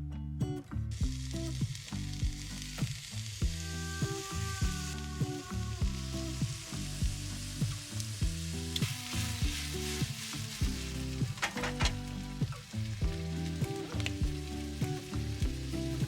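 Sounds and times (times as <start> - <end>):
food sizzling in a frying pan: 0.9 - 16.0
background music: 3.4 - 16.0.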